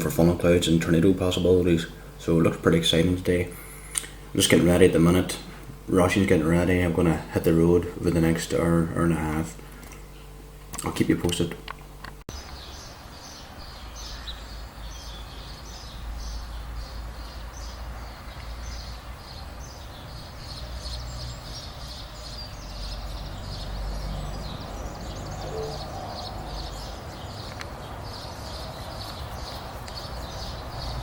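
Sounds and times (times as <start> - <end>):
small birds singing and chirping: 12.3 - 31.0.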